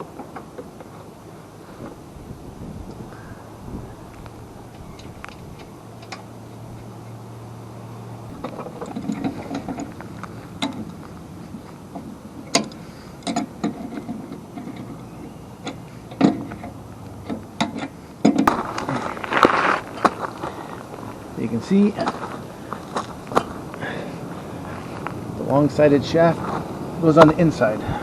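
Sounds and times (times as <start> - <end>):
tools and metal parts clinking: 8.3 - 11.0
scraping rattle: 8.3 - 21.2.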